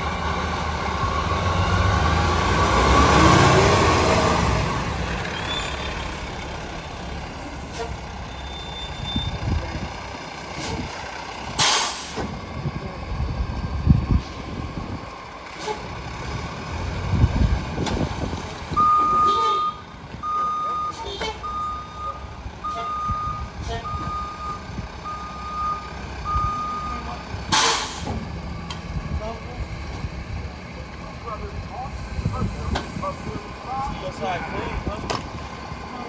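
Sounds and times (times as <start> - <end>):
garbage truck diesel engine: 0.0 - 36.0
reversing beeper: 5.2 - 9.7, 18.7 - 27.2
air brakes hissing: 11.5 - 12.3, 15.6 - 15.9, 27.5 - 28.2.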